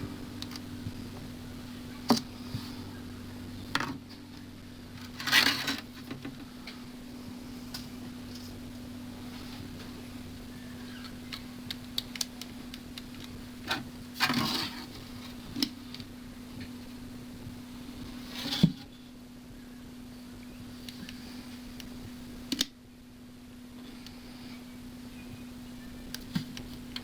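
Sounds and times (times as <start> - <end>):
steady low hum: 0.0 - 27.0
rustling or scraping bursts: 5.0 - 6.1.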